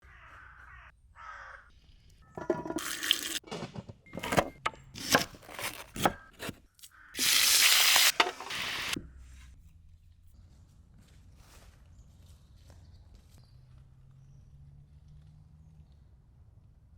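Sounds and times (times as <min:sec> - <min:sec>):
utensils clattering and scraping: 0:02.4 - 0:06.5, 0:07.2 - 0:09.0
food sizzling in frying: 0:02.8 - 0:03.4, 0:07.2 - 0:09.0.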